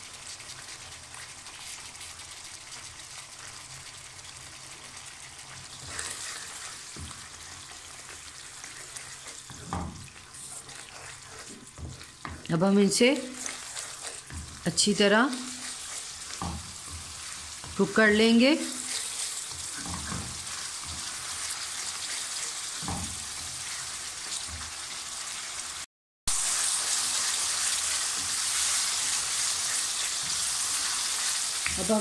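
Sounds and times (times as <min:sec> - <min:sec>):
gravy sizzling in hot oil: 0:00.0 - 0:32.0
wooden spoon stirring in pan: 0:00.0 - 0:32.0
person speaking: 0:12.4 - 0:13.6, 0:14.6 - 0:15.8, 0:17.7 - 0:19.0.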